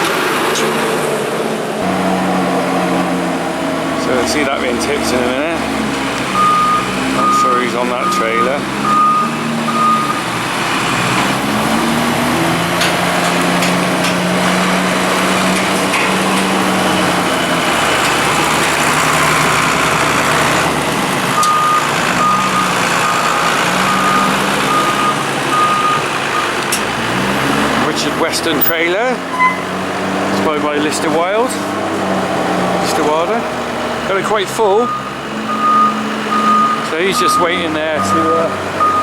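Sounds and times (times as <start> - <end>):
diesel engine under load: 0.0 - 39.0
reversing alarm beeping: 6.3 - 10.3, 21.4 - 26.6, 34.8 - 39.0.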